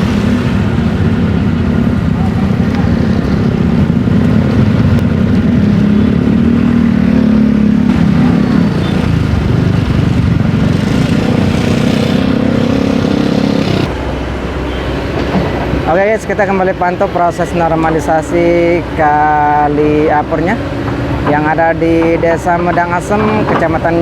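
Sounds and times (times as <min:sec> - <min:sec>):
traffic passing: 0:00.0 - 0:24.0.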